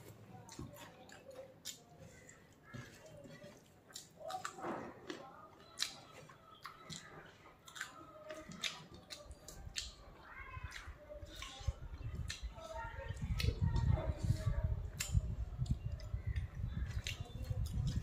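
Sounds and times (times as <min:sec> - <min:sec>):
person chewing food: 0:00.0 - 0:13.6.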